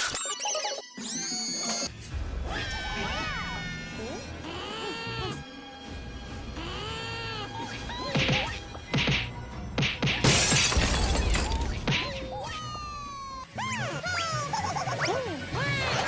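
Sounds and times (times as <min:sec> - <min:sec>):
background music: 0:01.9 - 0:16.0
cartoon whacks: 0:08.0 - 0:10.6
loud shattering crash: 0:10.2 - 0:11.6.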